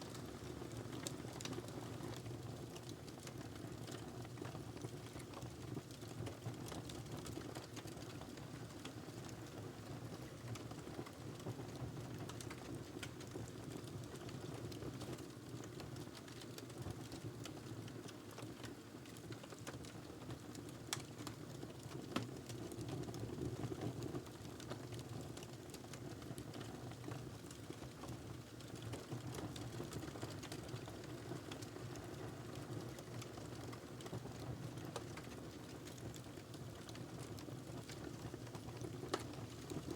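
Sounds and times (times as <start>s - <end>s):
wood fire crackling: 24.6s - 39.9s.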